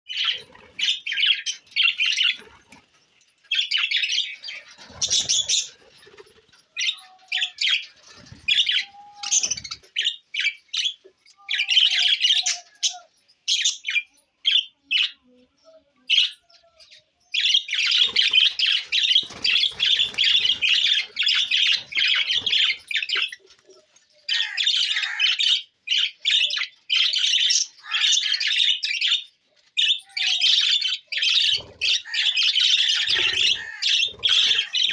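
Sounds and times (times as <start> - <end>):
budgerigars chattering: 17.5 - 23.4, 24.3 - 29.2, 29.8 - 34.9.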